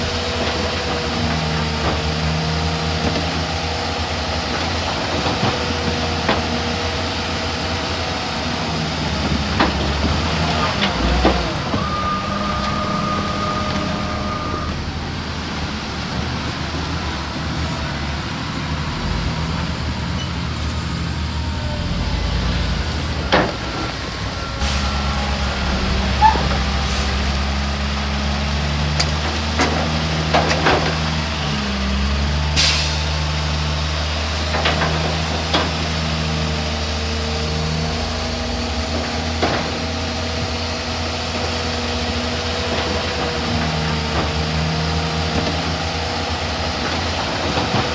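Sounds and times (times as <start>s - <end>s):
heavy diesel machinery running: 0.0s - 47.9s.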